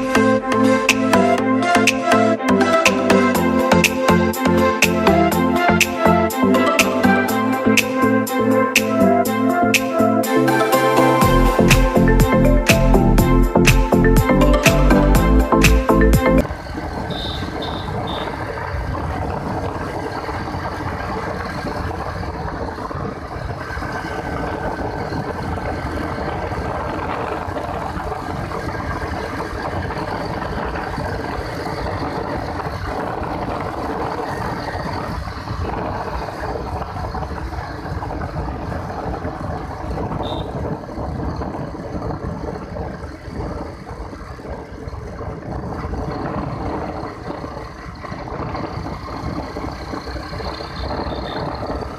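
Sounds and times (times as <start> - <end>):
road noise: 0.0 - 51.9
motorcycle engine running: 16.4 - 51.9
wind rush: 16.4 - 51.9.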